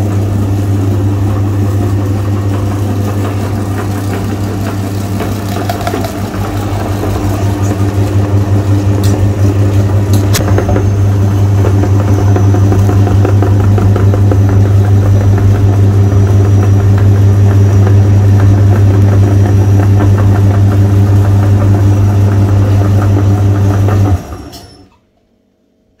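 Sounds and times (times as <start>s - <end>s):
electric meat grinder humming: 0.0s - 24.8s.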